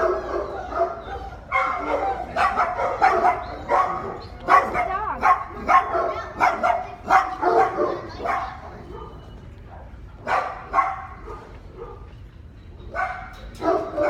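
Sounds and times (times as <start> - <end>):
dog yelping: 0.0 - 9.3
dogs barking: 0.0 - 14.0.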